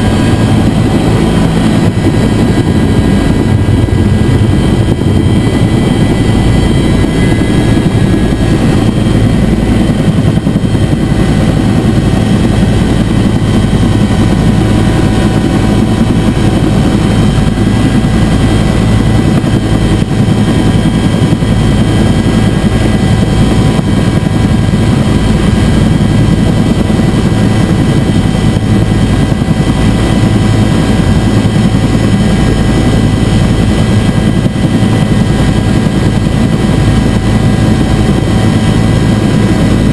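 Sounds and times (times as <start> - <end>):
faint turbine whine: 0.0 - 39.9
helicopter rotor drone: 0.0 - 39.9.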